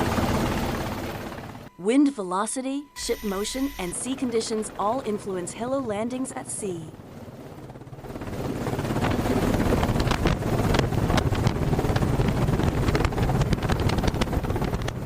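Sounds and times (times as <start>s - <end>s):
helicopter rotor and engine: 0.0s - 1.7s, 3.0s - 15.0s
wind buffeting microphone: 7.0s - 15.0s.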